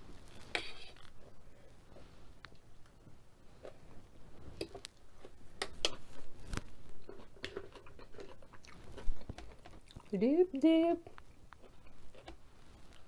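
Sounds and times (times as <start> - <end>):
person chewing with lips closed: 6.9 - 10.1, 11.1 - 12.4.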